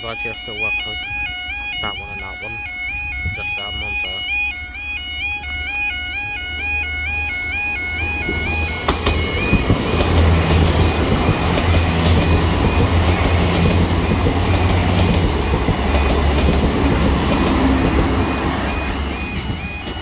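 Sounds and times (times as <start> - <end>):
crossing alarm tones: 0.0 - 20.0
train engine drone: 0.0 - 20.0
train wheel and rail noise: 7.2 - 20.0.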